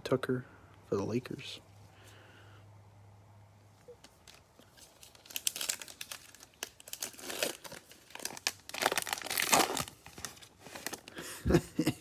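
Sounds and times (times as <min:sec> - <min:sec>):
foil wrapper tearing and crinkling: 0:04.2 - 0:11.2.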